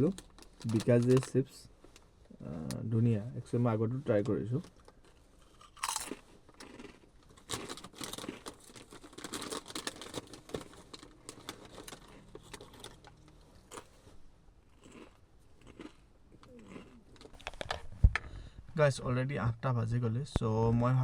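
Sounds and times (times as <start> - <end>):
plastic chips packet crinkling: 0.0 - 1.6, 5.5 - 13.9.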